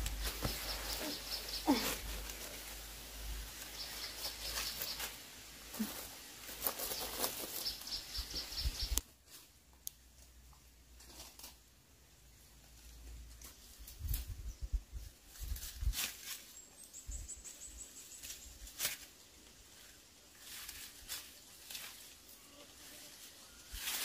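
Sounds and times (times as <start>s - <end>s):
birds chirping in rapid trills: 0.3s - 1.9s, 6.8s - 9.0s.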